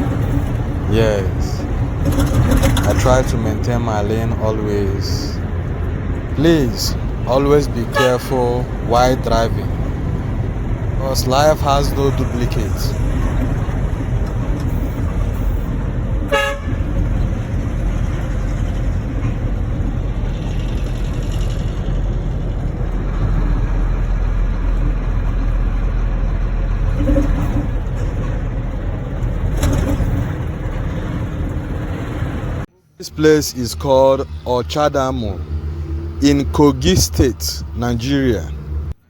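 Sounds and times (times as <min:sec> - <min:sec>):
truck engine and road rumble: 0:00.0 - 0:39.0
truck horn tooting: 0:06.4 - 0:10.4, 0:14.6 - 0:17.6.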